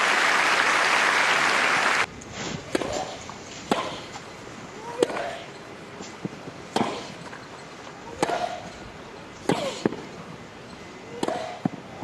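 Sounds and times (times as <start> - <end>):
racket striking tennis ball: 2.6 - 4.2, 4.9 - 5.5, 6.1 - 7.2, 8.1 - 8.7, 11.1 - 11.8
tennis ball bouncing: 11.1 - 11.7.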